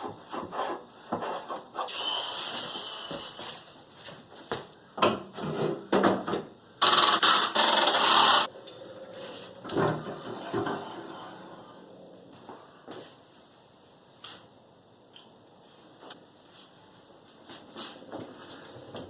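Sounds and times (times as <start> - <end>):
rough scraping and rubbing strokes: 9.1 - 9.6.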